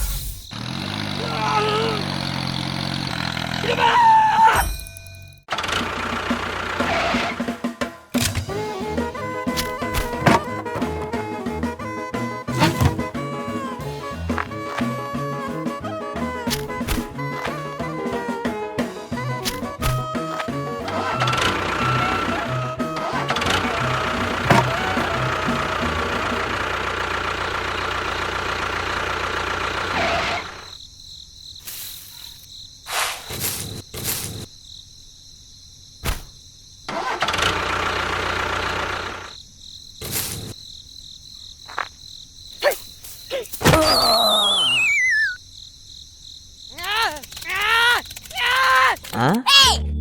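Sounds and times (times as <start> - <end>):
motor droning: 0.5 - 3.8, 8.5 - 30.7
falling whistle: 43.7 - 45.4
clicks: 46.8 - 49.3.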